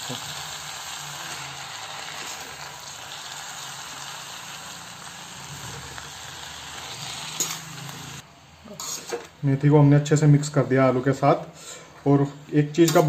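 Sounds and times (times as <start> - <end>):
vegetables sizzling in oil: 0.0 - 9.4.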